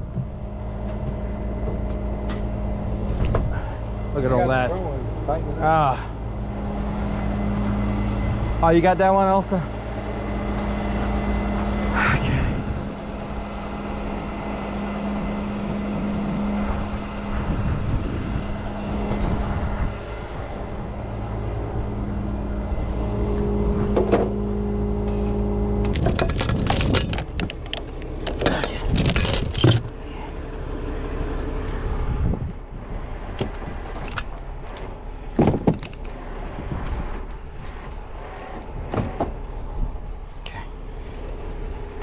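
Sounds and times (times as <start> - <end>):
truck engine running: 0.0 - 42.0
metal clanking and jangling: 25.8 - 30.0.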